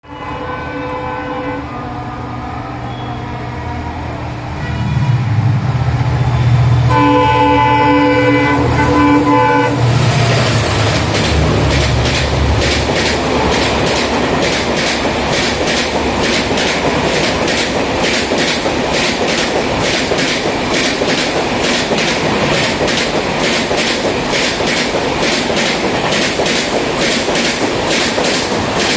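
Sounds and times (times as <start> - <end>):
train horn chord: 0.0 - 5.7, 6.8 - 9.9
locomotive rumble: 3.1 - 28.9
train wheels clattering over rail joints: 10.3 - 28.9.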